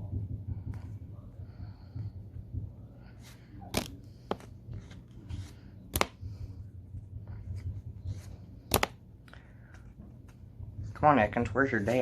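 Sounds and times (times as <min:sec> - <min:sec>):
trading cards rustling: 0:03.3 - 0:06.3, 0:07.6 - 0:10.5
cards snapping: 0:03.7 - 0:05.0, 0:05.9 - 0:06.2, 0:08.6 - 0:09.0.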